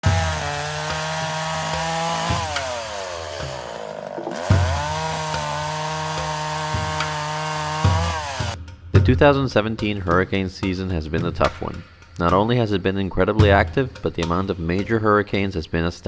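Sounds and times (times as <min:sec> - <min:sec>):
chainsaw running: 0:00.0 - 0:08.6.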